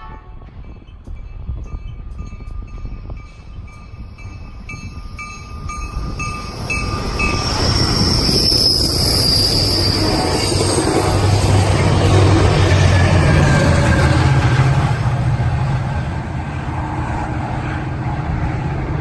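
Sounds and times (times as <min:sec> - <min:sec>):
crossing warning bell dinging: 0:00.0 - 0:14.2
diesel locomotive hum: 0:00.0 - 0:19.0
train wheels on rails: 0:00.4 - 0:19.0.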